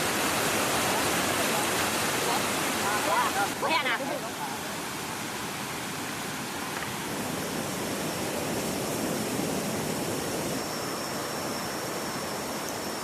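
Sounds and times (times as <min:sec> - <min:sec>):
waterfall rushing: 0:00.0 - 0:13.0
faint high whine: 0:07.1 - 0:13.0.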